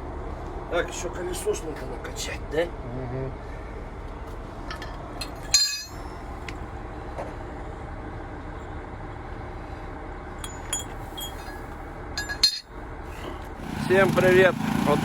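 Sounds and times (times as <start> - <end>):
truck engine idling: 0.0 - 15.0
metallic clinks: 4.7 - 6.2, 10.4 - 12.7.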